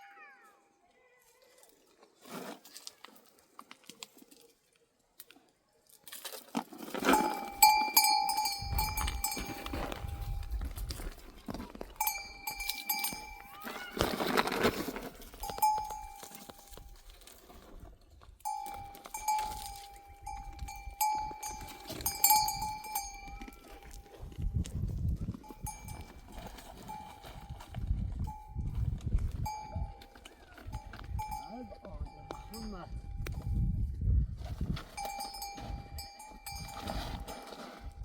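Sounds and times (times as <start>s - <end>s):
livestock neck bells clanking: 6.8s - 17.7s, 18.3s - 33.9s, 34.8s - 38.0s.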